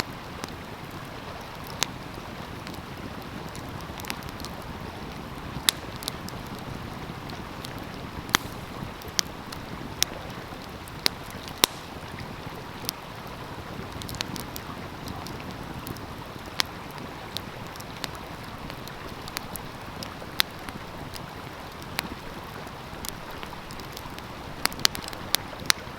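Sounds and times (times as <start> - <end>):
stream flowing: 0.0 - 25.9
wood fire crackling: 0.0 - 25.9.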